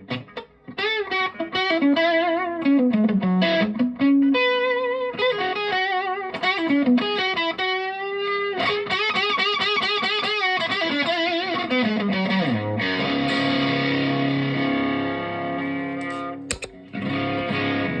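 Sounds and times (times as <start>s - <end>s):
overdriven electric guitar lead: 0.0s - 18.0s
guitar chord ringing: 13.0s - 18.0s.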